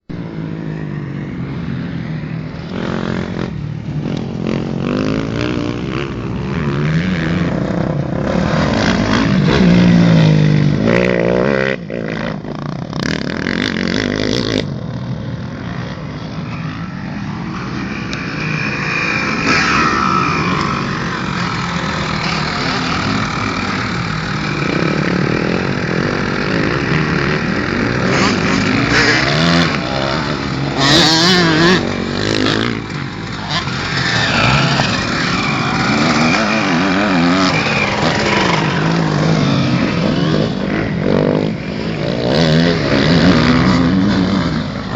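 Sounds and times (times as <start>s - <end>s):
motocross bike engine revving: 2.7s - 14.9s, 15.5s - 44.9s.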